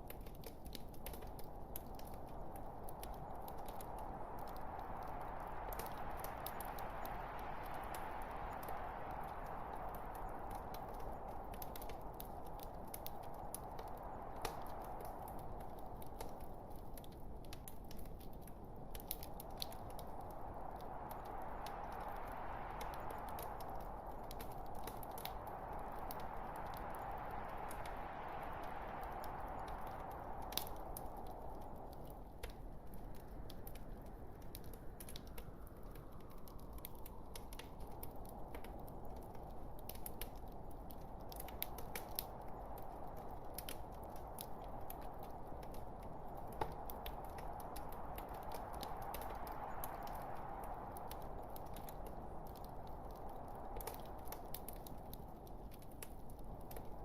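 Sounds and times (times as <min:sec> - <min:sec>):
log fire crackling: 0:00.0 - 0:57.0.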